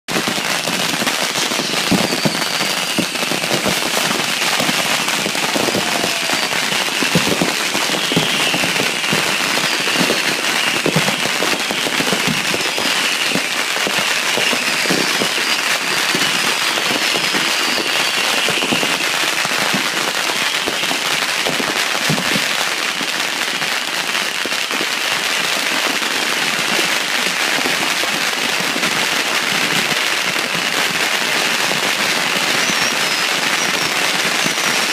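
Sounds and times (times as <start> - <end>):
firecrackers crackling: 0.1 - 34.9
faint high whistles: 1.2 - 13.5, 14.4 - 19.0, 32.3 - 34.9.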